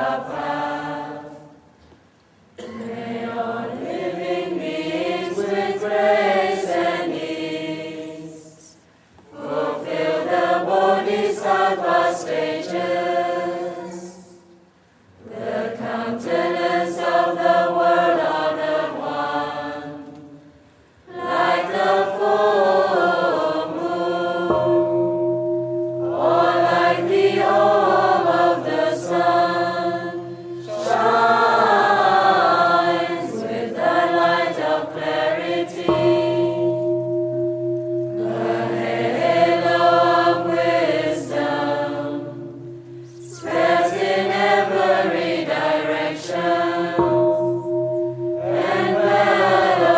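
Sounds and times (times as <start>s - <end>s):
steady ringing tone: 22.8s - 34.5s, 35.3s - 49.9s
group of voices chanting: 26.1s - 35.9s, 43.2s - 47.0s.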